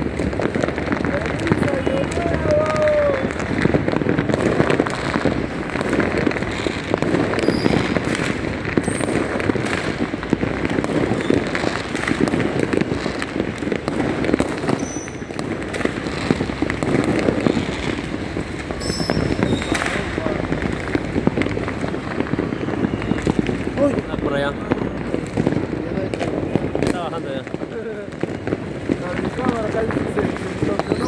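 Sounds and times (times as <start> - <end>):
fireworks bangs and crackling: 0.0 - 31.0
high firework whistles: 1.4 - 31.0.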